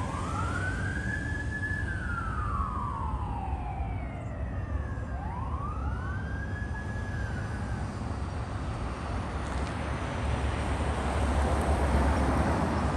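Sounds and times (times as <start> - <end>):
fire engine siren wailing: 0.0 - 9.4.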